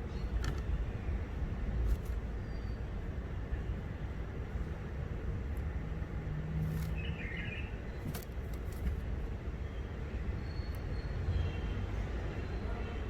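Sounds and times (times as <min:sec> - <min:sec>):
bird chirping call: 0:06.9 - 0:08.0.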